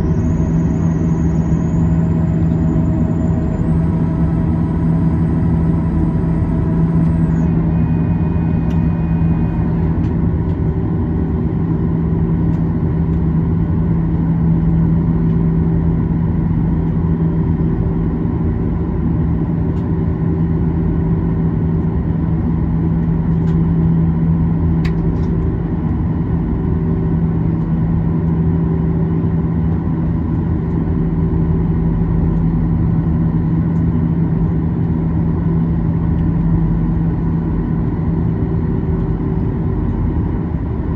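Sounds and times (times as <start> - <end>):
faint high whine: 0.0 - 10.1
jet engines idling in cabin: 0.0 - 40.9.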